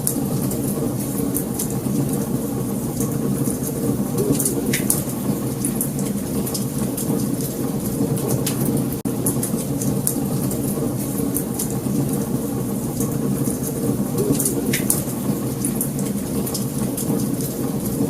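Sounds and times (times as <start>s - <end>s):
fire crackling and popping: 0.0s - 18.0s
flames rumbling: 0.0s - 18.0s.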